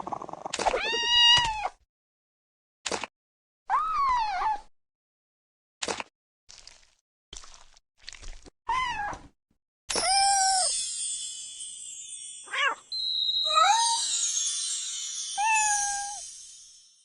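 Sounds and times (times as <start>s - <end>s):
music: 9.9s - 17.0s
high hissing shimmer: 10.2s - 17.0s.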